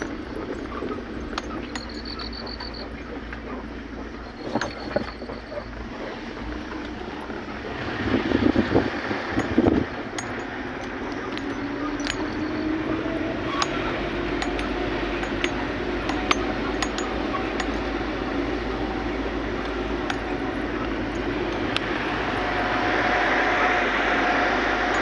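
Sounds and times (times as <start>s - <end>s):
light clicks and clinks: 0.0s - 5.8s, 8.4s - 25.0s
vehicle engine rumbling: 0.0s - 25.0s
faint wavering tone: 8.6s - 25.0s.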